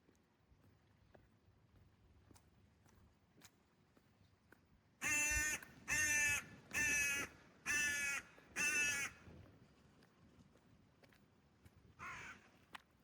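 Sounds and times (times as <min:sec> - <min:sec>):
crow cawing: 0:05.0 - 0:09.2, 0:12.0 - 0:12.4.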